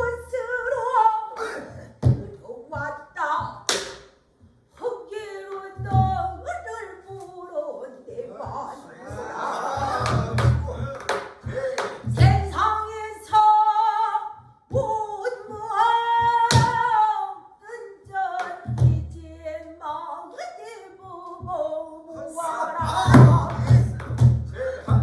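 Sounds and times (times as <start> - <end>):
solo voice singing with vibrato: 11.4 - 25.0.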